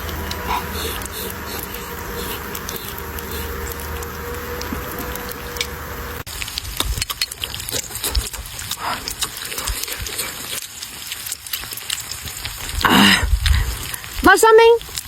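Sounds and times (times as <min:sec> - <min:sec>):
person chewing noisily: 0:00.0 - 0:15.0.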